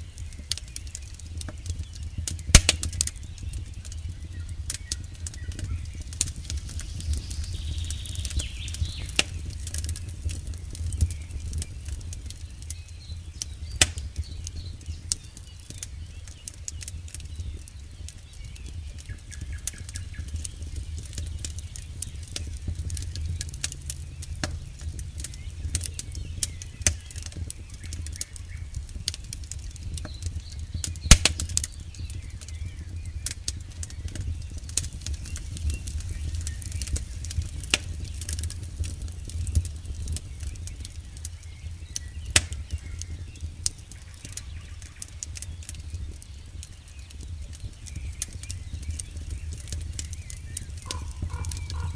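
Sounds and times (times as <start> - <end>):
campfire crackling: 0.0 - 51.9
low flame rumble: 0.0 - 51.9
loud fire pop: 1.4 - 12.8, 13.4 - 15.9, 18.9 - 41.2, 42.0 - 43.5.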